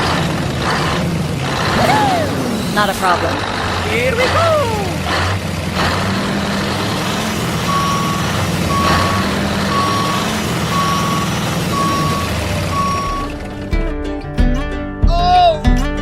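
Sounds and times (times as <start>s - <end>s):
engine hum: 0.0s - 13.7s
reversing alarm beeping: 7.6s - 13.4s.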